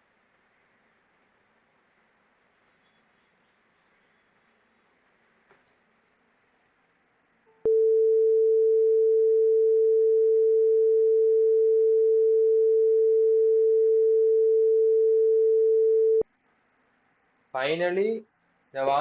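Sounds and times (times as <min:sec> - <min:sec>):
buzzer steady mid-pitched tone: 0:07.7 - 0:16.2.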